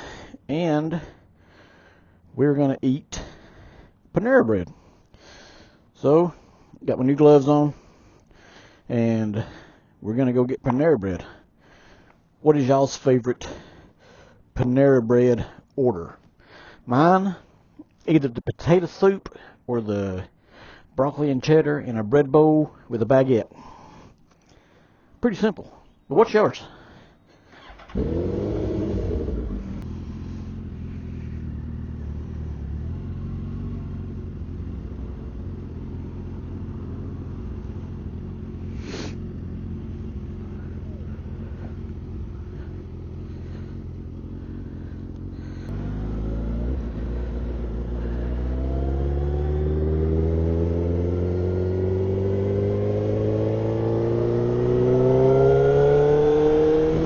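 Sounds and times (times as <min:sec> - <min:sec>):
motorcycle engine starting and idling: 0:26.8 - 0:57.0
motorcycle engine accelerating: 0:27.6 - 0:57.0.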